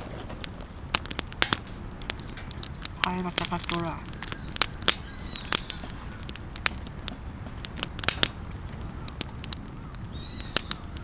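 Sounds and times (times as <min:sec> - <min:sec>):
campfire crackling and popping: 0:00.0 - 0:11.0.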